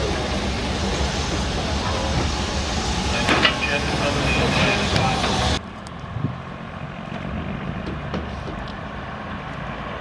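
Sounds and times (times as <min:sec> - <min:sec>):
loud hissing: 0:00.0 - 0:05.6
low engine rumble: 0:00.0 - 0:10.0.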